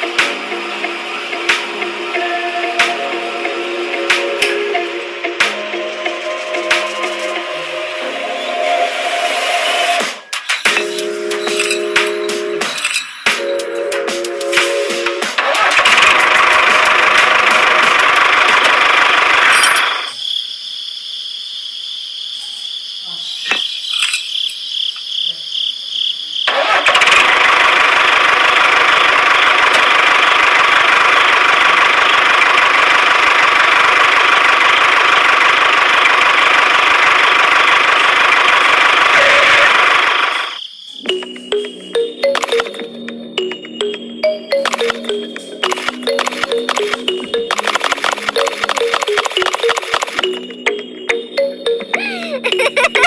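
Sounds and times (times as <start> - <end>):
clicks: 41.1 - 52.0.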